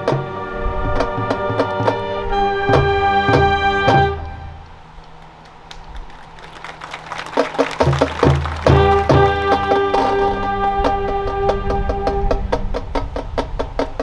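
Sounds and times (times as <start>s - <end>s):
marching band brass chords: 5.3s - 11.0s.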